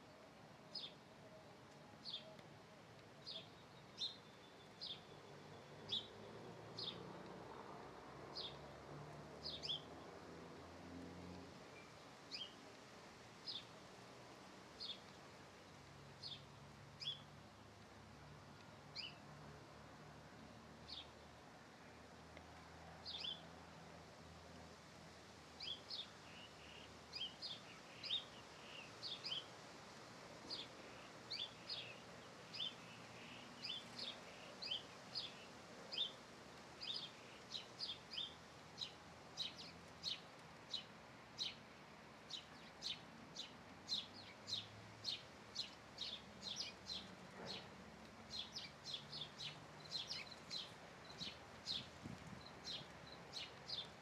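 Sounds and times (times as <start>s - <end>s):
small songbird chirping: 0.7s - 1.0s, 3.2s - 7.0s, 9.4s - 9.9s, 11.8s - 12.7s, 13.4s - 13.8s, 14.8s - 15.2s, 16.2s - 17.3s, 25.6s - 29.6s, 30.4s - 36.2s, 36.8s - 41.6s, 42.2s - 54.0s.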